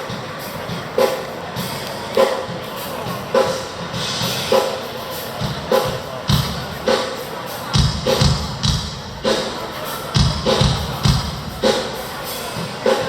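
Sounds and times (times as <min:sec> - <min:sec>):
drum hits: 0:07.8 - 0:13.0.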